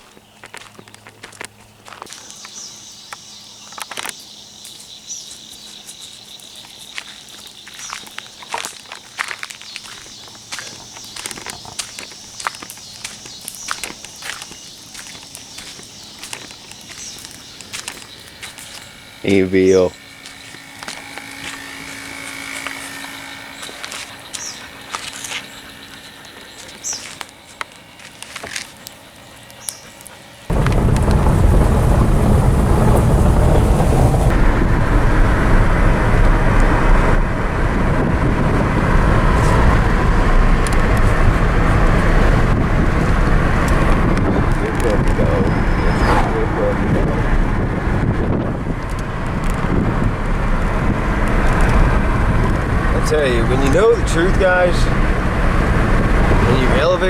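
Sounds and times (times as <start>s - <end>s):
high insect drone: 2.0s - 34.4s
footsteps or rustles: 3.7s - 19.0s, 20.2s - 31.8s.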